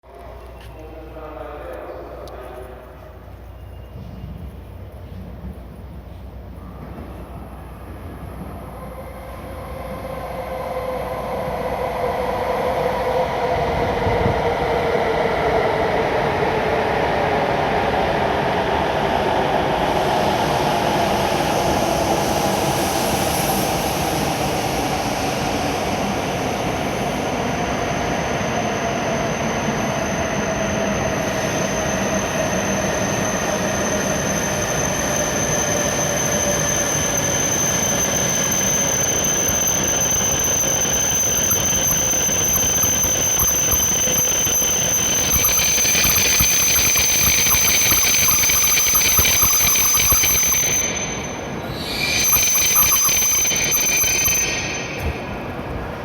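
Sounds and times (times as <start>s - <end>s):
train running and braking: 0.1s - 56.0s
high brake squeal: 21.2s - 55.9s.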